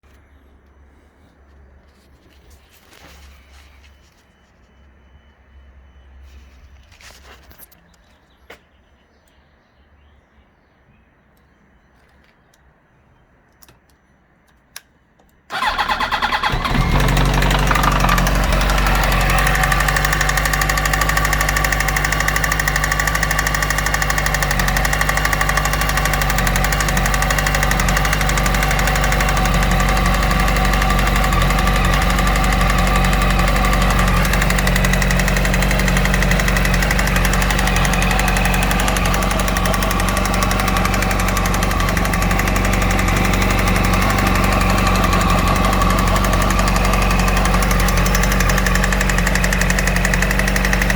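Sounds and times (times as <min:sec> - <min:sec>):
engine knocking: 0:15.5 - 0:50.9
motorcycle engine starting and idling: 0:15.5 - 0:50.9.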